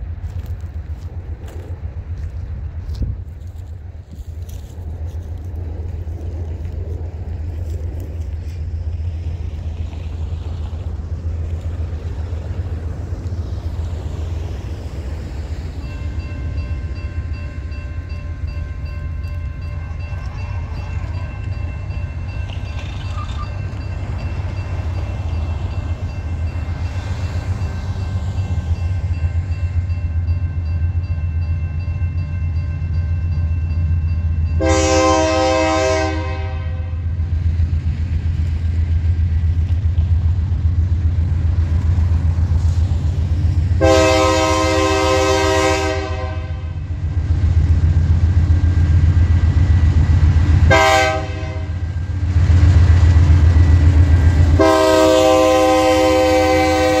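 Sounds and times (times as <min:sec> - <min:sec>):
diesel locomotives rumbling: 0:00.0 - 0:57.0
faint steady tones: 0:01.9 - 0:35.1
locomotive horn blast: 0:34.6 - 0:37.1, 0:43.8 - 0:46.9, 0:50.6 - 0:51.8, 0:54.6 - 0:57.0.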